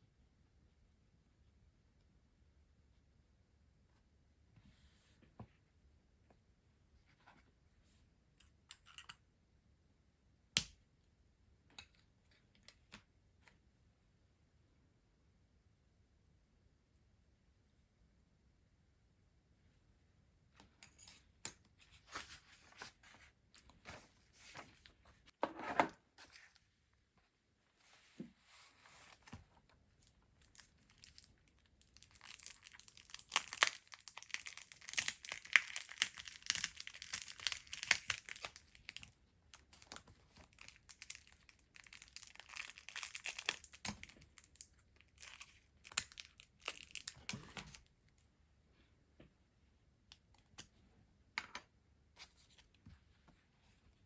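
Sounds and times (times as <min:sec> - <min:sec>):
packaging crinkling and tearing: 0:30.4 - 0:47.9.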